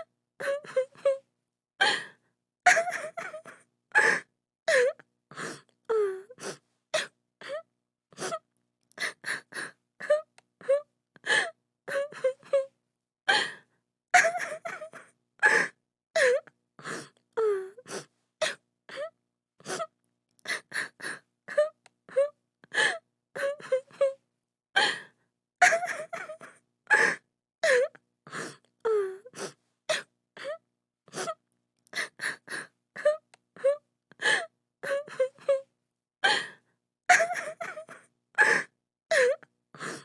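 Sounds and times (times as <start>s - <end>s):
woman crying and sobbing: 2.7s - 5.0s, 14.2s - 16.4s, 25.6s - 27.9s, 37.1s - 39.4s.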